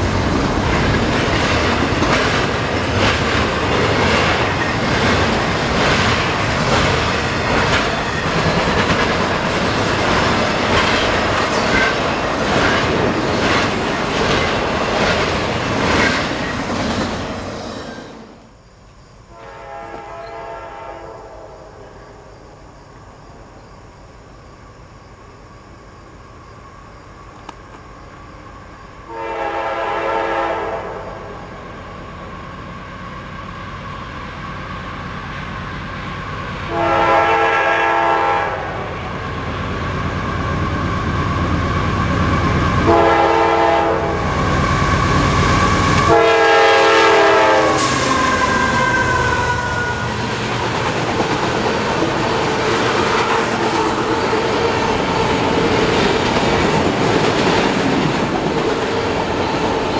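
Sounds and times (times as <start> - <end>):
train wheels rumbling on rails: 0.0 - 19.0, 26.0 - 59.9
locomotive air horn blasts: 19.3 - 21.6, 29.1 - 31.4, 36.7 - 39.0, 42.8 - 44.3, 46.0 - 50.1.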